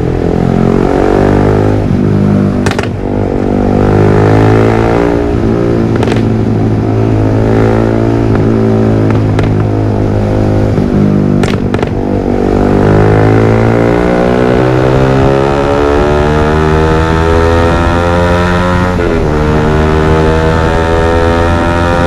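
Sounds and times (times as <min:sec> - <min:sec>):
motorcycle engine running: 0:00.0 - 0:22.0
exhaust pops: 0:02.6 - 0:03.1, 0:05.9 - 0:06.4, 0:08.3 - 0:09.7, 0:10.7 - 0:12.1.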